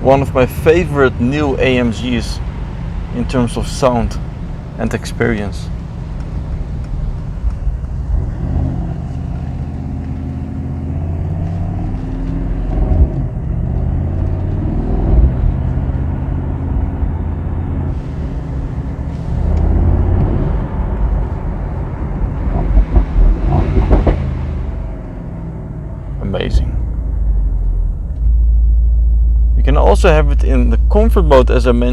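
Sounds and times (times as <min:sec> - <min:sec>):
exhaust cracks: 0:00.0 - 0:31.9
car engine accelerating through gears: 0:05.7 - 0:28.7.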